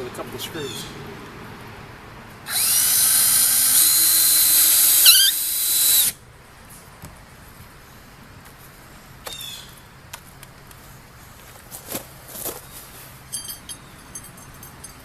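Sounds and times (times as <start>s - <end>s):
cordless drill driving screws: 2.5s - 6.2s.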